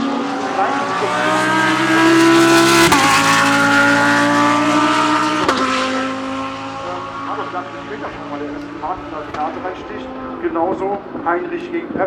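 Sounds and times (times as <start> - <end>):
gear change: 0.0 - 12.0
race cars passing at speed: 0.0 - 12.0.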